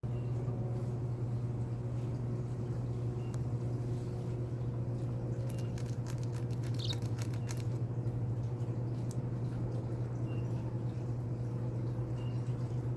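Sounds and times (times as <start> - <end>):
steady low hum: 0.0 - 12.9
bird high peep: 5.4 - 7.7
beak clicks and crunches: 5.4 - 7.8, 8.4 - 9.3.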